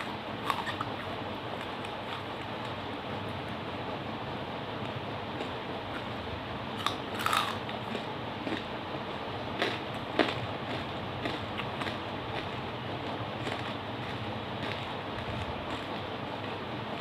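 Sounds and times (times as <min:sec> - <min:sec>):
person chewing charcoal: 0:00.0 - 0:02.8, 0:05.4 - 0:06.2, 0:06.8 - 0:08.7, 0:09.6 - 0:17.0.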